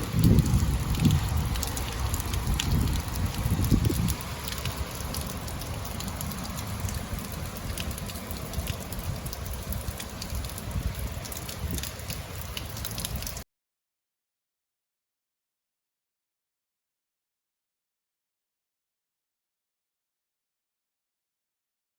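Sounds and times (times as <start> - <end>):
rain falling: 0.0 - 13.4.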